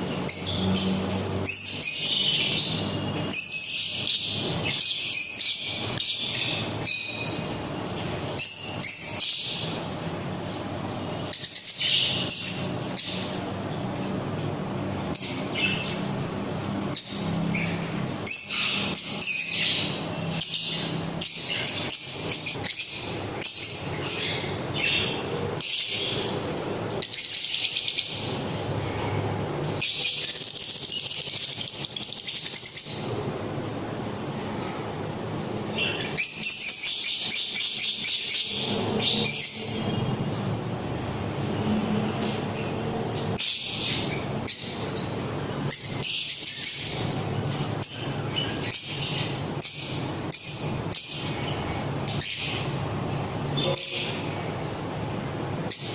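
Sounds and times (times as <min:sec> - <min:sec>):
parrots chattering and calling: 0:00.2 - 0:07.7, 0:08.4 - 0:09.9, 0:11.3 - 0:13.5, 0:16.9 - 0:26.4, 0:27.0 - 0:28.6, 0:29.8 - 0:33.3, 0:35.7 - 0:40.2, 0:42.5 - 0:54.6, 0:55.7 - 0:55.9.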